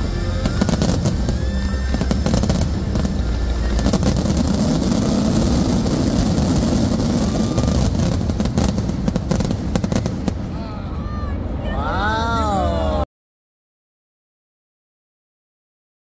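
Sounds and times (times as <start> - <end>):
fireworks rumbling and crackling: 0.0 - 11.7
sharp firework bangs: 0.3 - 10.6.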